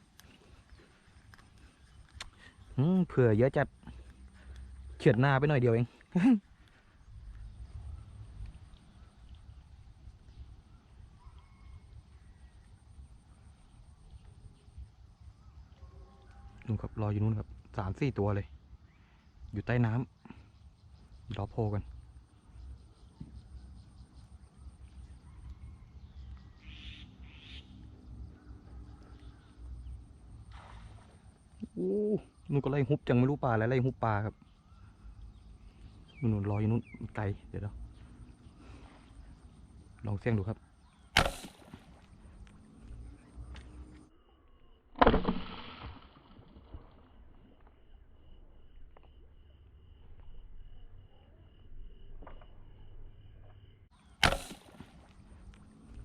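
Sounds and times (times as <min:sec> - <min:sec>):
high bird calls: 0:10.3 - 0:12.7, 0:20.2 - 0:30.0
dart shot crack and whoosh: 0:41.2 - 0:42.0, 0:45.0 - 0:46.1, 0:54.2 - 0:55.0.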